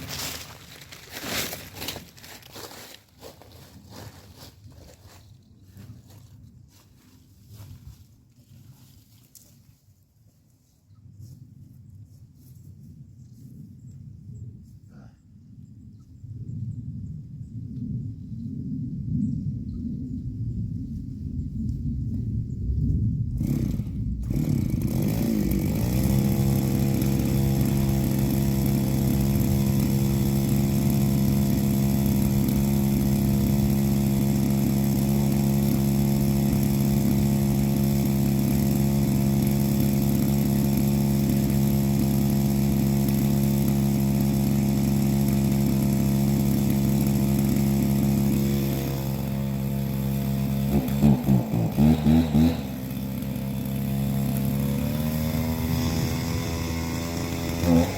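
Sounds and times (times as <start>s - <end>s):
chainsaw cutting tree: 0.0s - 5.2s, 23.4s - 57.9s.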